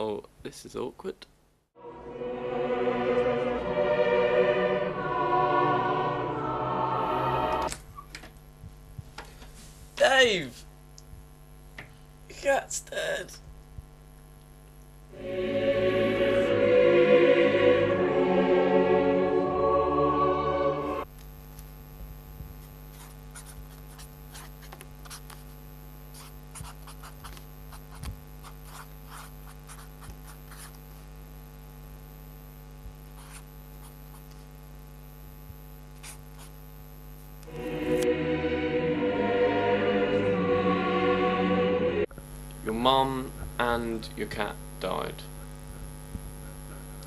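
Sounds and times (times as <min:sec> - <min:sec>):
choir singing: 0:01.8 - 0:07.8, 0:15.1 - 0:21.1, 0:37.5 - 0:42.1.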